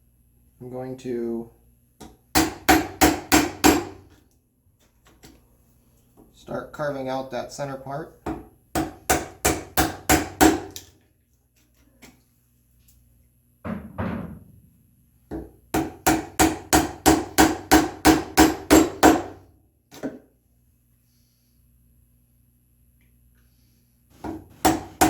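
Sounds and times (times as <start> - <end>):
mallet striking chisel into wood: 2.0 - 4.0, 8.2 - 10.8, 15.3 - 19.4, 24.2 - 25.0.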